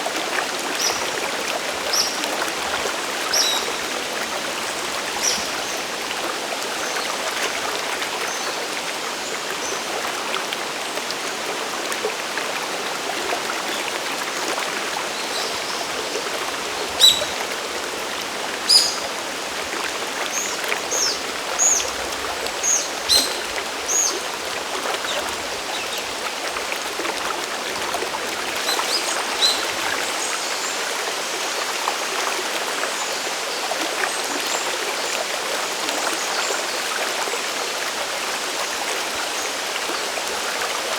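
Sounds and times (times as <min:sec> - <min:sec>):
bird chirping: 0:17.0 - 0:17.4, 0:18.7 - 0:19.0.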